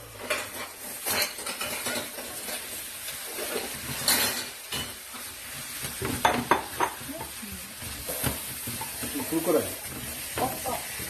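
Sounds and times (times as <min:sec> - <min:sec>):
food sizzling in a pan: 0:00.0 - 0:11.0
utensil clattering on pan: 0:00.2 - 0:07.4.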